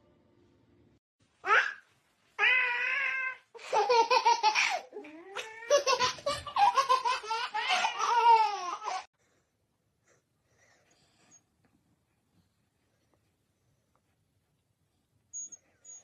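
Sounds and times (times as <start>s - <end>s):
child laughing: 3.5s - 9.1s.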